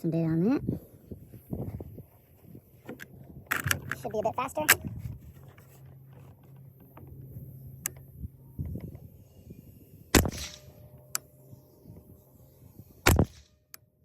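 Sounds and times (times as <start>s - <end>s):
rifle shot with echo: 10.1s - 10.8s, 13.0s - 13.6s.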